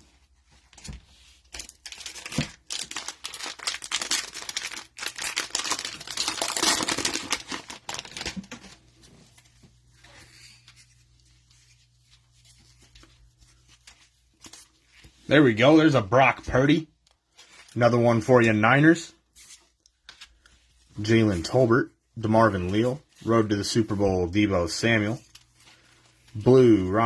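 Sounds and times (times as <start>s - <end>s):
plastic wrapper tearing and crinkling: 1.5s - 8.8s.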